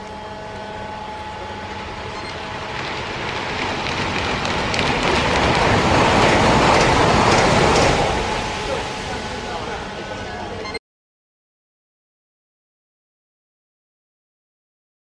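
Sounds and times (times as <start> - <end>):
high-speed train passing: 0.0 - 10.8.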